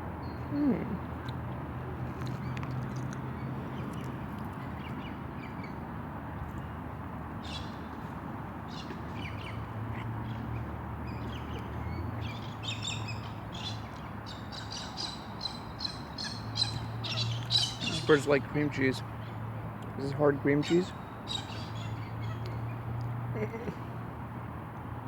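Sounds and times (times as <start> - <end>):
birds chirping and squawking: 12.2 - 18.4, 20.5 - 22.4.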